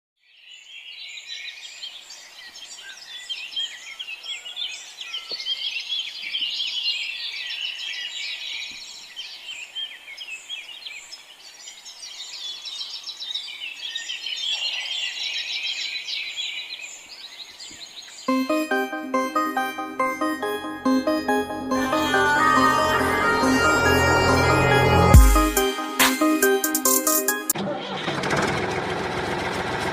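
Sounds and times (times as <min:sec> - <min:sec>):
keyboard music: 0:18.3 - 0:27.6.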